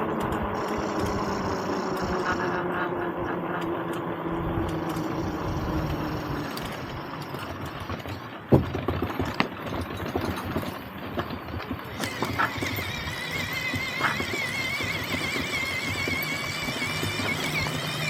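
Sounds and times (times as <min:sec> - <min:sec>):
wavering whine: 0:00.0 - 0:07.7
vehicle knocks and rattles: 0:03.6 - 0:18.0.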